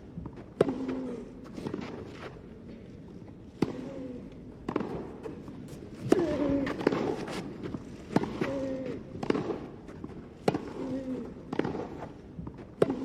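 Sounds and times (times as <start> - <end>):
tennis ball struck by rackets: 0.3 - 2.1, 3.5 - 3.9, 4.6 - 13.0.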